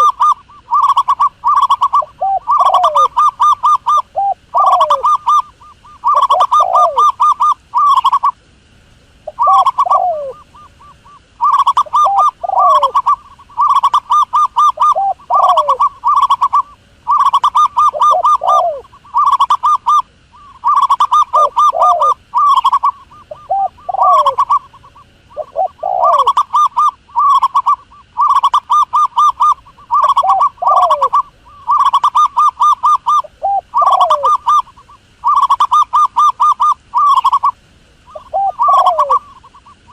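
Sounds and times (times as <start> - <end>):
dove cooing calls: 0.0 - 39.9.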